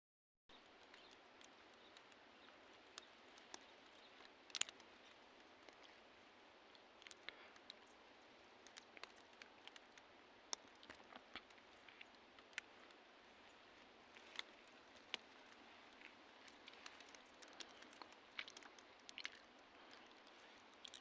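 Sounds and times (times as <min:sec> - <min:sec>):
small clicks: 0:00.5 - 0:06.0, 0:08.6 - 0:13.0, 0:14.2 - 0:21.0
faint steady hiss: 0:00.5 - 0:21.0.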